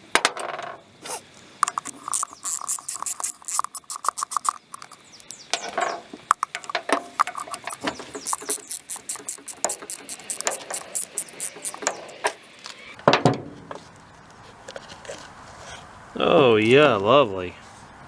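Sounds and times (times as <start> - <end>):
hand tool squeaky clicks and scrapes: 1.0 - 13.0
rapid regular squeaks: 1.1 - 13.0.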